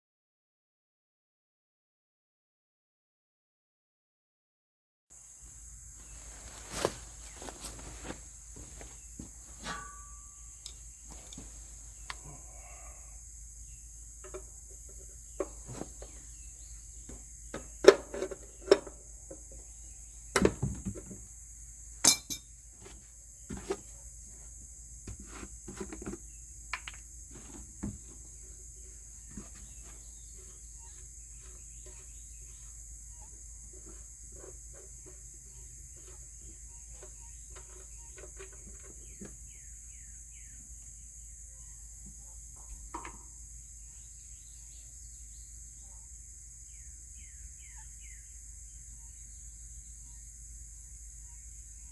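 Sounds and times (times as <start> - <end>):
metal tools clinking: 22.0 - 22.5.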